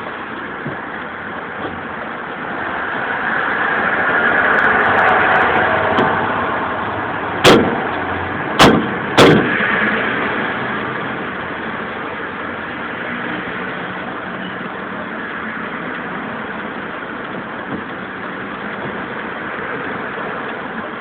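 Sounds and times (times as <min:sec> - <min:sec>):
vehicle road noise: 0:00.0 - 0:21.0
loud sharp knocks: 0:07.4 - 0:07.9, 0:08.6 - 0:09.7.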